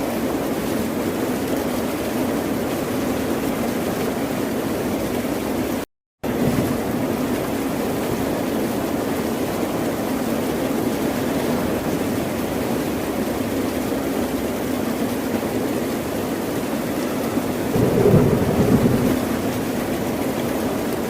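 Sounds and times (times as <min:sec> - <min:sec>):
rushing water: 0:00.0 - 0:21.0
low rumble: 0:17.7 - 0:19.9.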